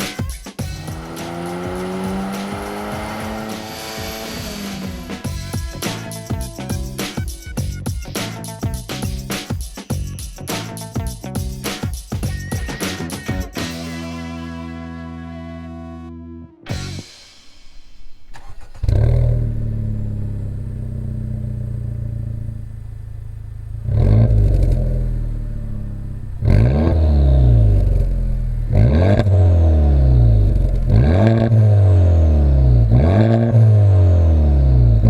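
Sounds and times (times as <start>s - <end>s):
car engine revving: 0.0s - 7.1s, 16.7s - 35.0s
car engine cranking: 0.6s - 6.5s, 17.7s - 35.0s
car engine idling: 0.6s - 7.0s, 16.8s - 33.0s.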